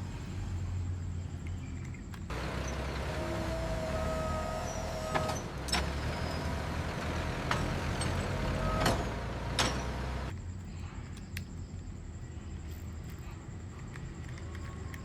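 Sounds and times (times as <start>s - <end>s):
heavy vehicle engine running: 2.3s - 10.4s.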